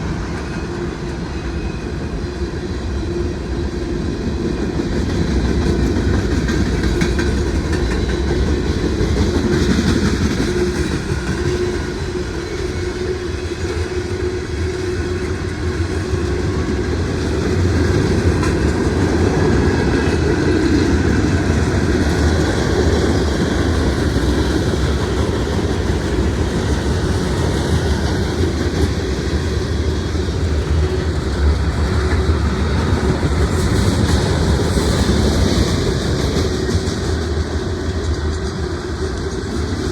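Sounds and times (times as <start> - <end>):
freight train rumbling: 0.0 - 39.9
wheels clacking over rail joints: 4.6 - 14.1.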